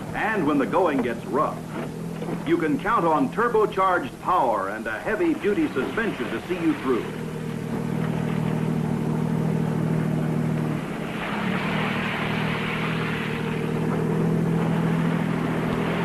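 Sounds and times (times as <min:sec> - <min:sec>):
car engine droning: 0:00.0 - 0:16.0
tyre spray through slush: 0:10.8 - 0:14.0.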